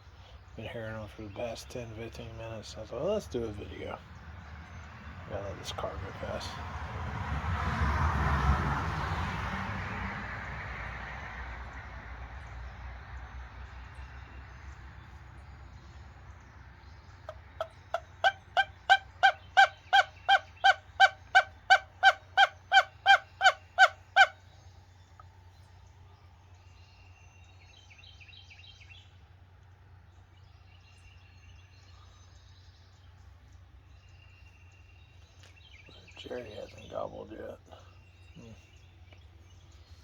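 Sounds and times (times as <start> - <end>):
small birds chirping: 0.0 - 6.6, 12.4 - 40.0
turkey yelps: 17.3 - 24.4.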